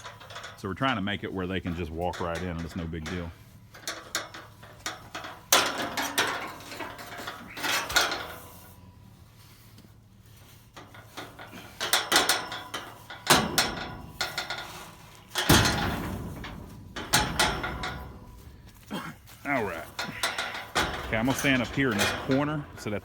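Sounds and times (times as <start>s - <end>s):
metal gates clanking and rattling: 0.0s - 23.0s.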